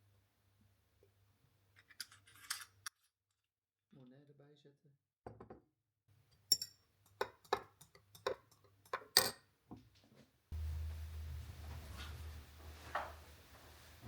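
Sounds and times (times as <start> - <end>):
steady low appliance hum: 10.5 - 14.0.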